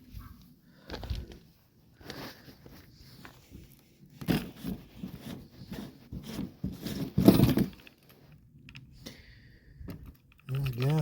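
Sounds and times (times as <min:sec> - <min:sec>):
clattering scrape: 0:04.2 - 0:08.2
handling clicks and rattles: 0:04.2 - 0:08.9, 0:09.9 - 0:11.0.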